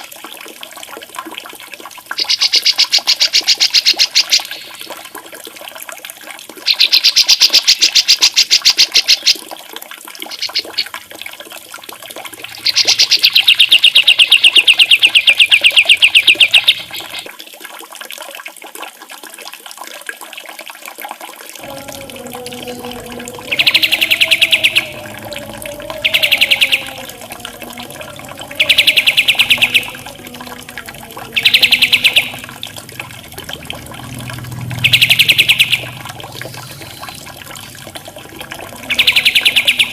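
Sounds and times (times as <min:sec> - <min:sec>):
running water: 0:00.0 - 0:39.9
songbird buzzy trills: 0:12.4 - 0:17.3, 0:21.6 - 0:33.2, 0:34.6 - 0:37.9.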